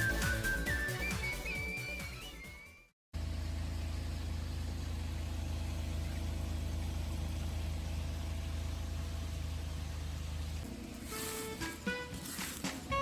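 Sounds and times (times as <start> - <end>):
background music: 0.0 - 2.8, 11.1 - 13.0
low engine hum: 3.2 - 13.0.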